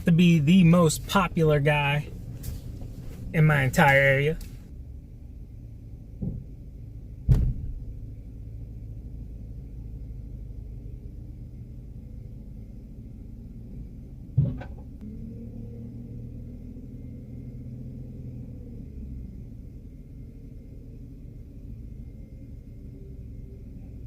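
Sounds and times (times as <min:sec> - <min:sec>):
vehicle engine idling: 0:00.0 - 0:24.0
loud sharp bang: 0:07.3 - 0:07.8.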